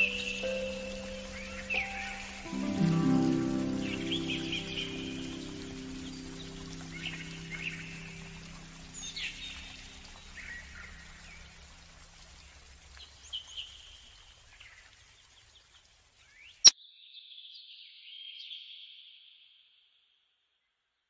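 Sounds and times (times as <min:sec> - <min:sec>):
long high bird call: 0:00.0 - 0:11.0
soft music: 0:00.0 - 0:11.8
birds chirping: 0:00.0 - 0:16.7.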